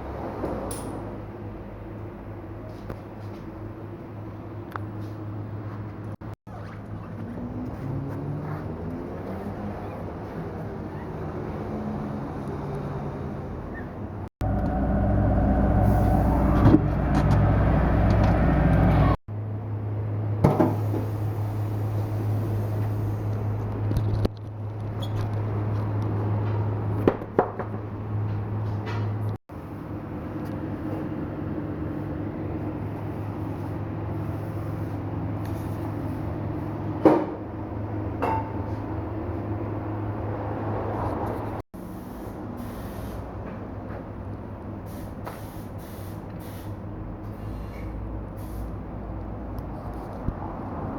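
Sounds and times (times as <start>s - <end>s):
low mechanical hum: 9.0s - 26.9s
machine humming: 14.4s - 19.2s.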